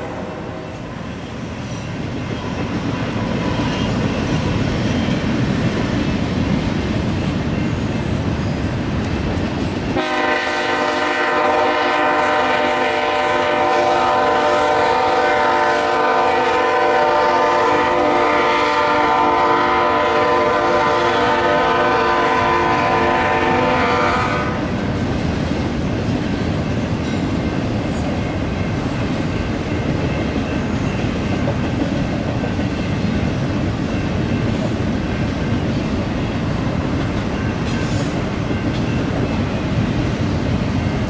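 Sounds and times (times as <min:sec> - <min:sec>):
multi-note train horn: 0:00.0 - 0:00.8, 0:10.0 - 0:24.8
freight cars rumbling on rails: 0:00.0 - 0:41.0.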